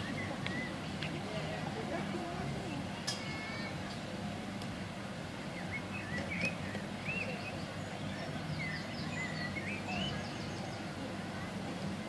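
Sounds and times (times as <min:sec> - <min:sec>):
small birds chirping: 0:00.0 - 0:01.3, 0:05.4 - 0:11.5
crowd hum: 0:00.0 - 0:12.0.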